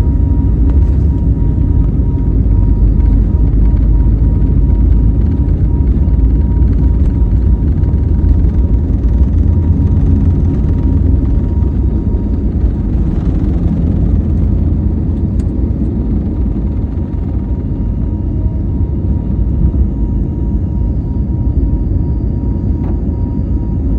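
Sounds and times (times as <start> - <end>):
airliner engine rumble: 0.0 - 23.9
faint engine whine: 0.0 - 23.9.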